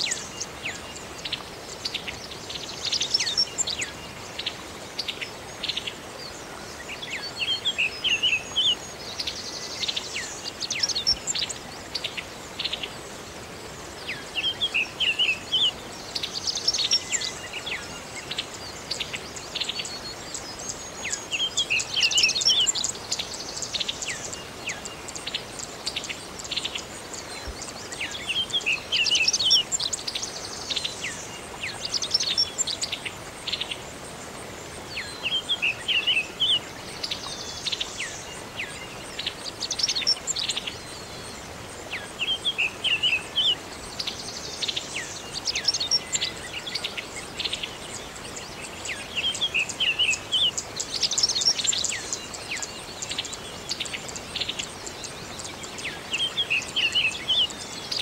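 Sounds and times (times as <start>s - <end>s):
steady background hiss: 0.0s - 58.0s.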